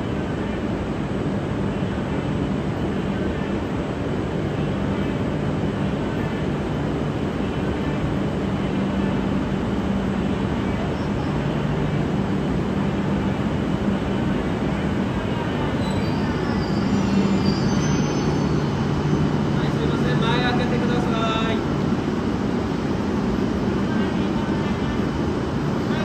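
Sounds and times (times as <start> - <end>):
train humming: 0.0 - 26.0
faint high-pitched squealing: 15.4 - 20.2.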